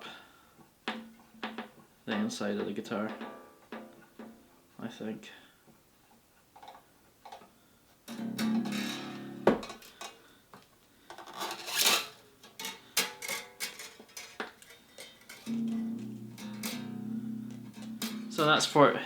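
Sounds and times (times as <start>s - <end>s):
guitar string twanging: 1.0s - 4.0s, 8.1s - 9.7s, 15.4s - 18.9s
wire rasping through: 11.3s - 12.8s.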